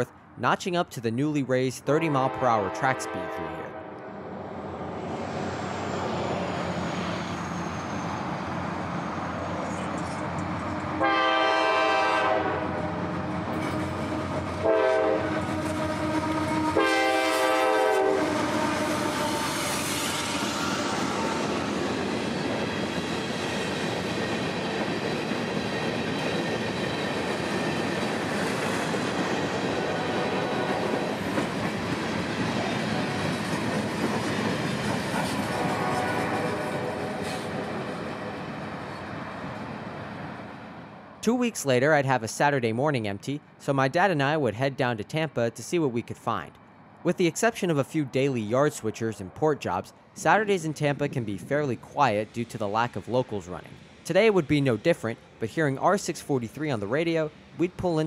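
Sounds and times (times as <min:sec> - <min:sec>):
train horn: 0:02.1 - 0:04.1, 0:11.0 - 0:12.9, 0:14.6 - 0:20.4, 0:35.4 - 0:37.8
wheels clacking on rails: 0:18.8 - 0:40.3.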